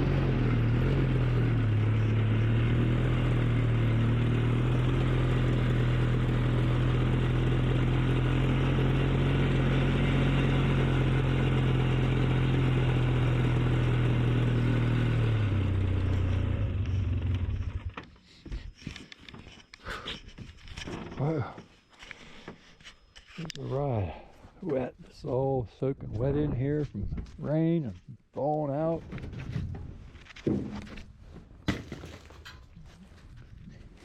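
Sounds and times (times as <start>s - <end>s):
atv engine running: 0.0s - 19.6s
knocks and clatters: 29.0s - 32.8s.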